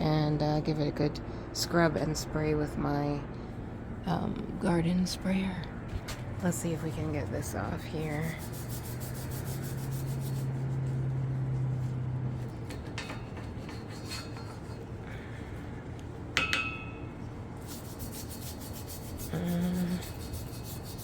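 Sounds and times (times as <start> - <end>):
low steady hum: 0.0 - 21.0
hand scrubbing grime: 6.7 - 15.0, 17.6 - 21.0
ringing clink: 16.4 - 17.1.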